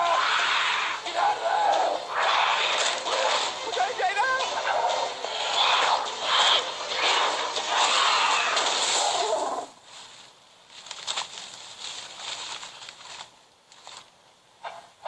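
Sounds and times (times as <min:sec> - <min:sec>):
loud screeching bird call: 0:05.4 - 0:09.6
faint rustles: 0:08.5 - 0:14.2.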